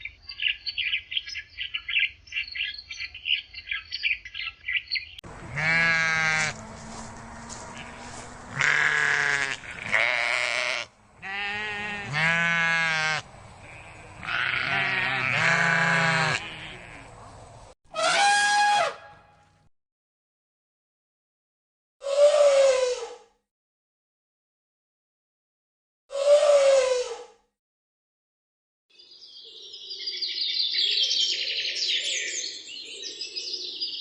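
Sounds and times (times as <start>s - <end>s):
farm animal bleating: 5.3s - 17.3s.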